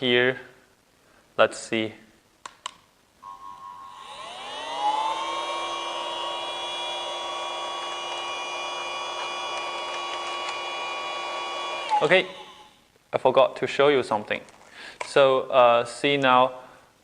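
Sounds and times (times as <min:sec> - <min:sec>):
small vacuum motor whining: 0:03.6 - 0:12.8.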